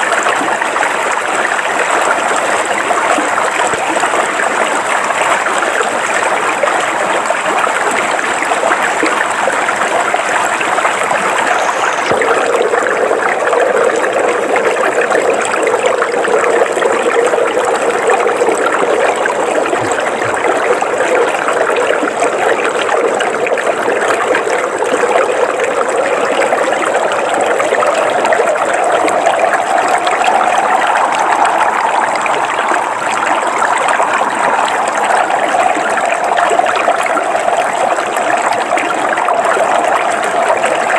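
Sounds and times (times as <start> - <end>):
river water flowing over rocks: 0.0 - 40.9
faint high steady tone: 10.8 - 13.9.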